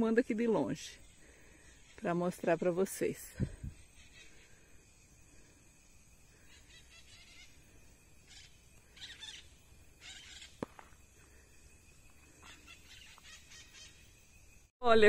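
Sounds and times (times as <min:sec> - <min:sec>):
faint bird calls: 0:03.4 - 0:04.8, 0:06.3 - 0:11.5, 0:12.2 - 0:14.2.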